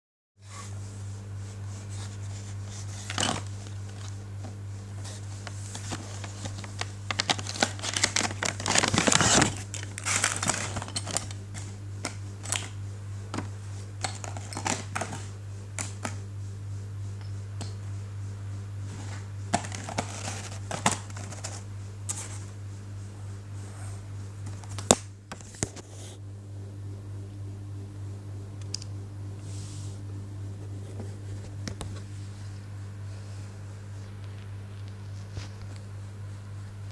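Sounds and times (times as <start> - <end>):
steady low hum: 0.4 - 36.9
crinkling plastic and cardboard: 2.1 - 16.2, 18.9 - 22.5.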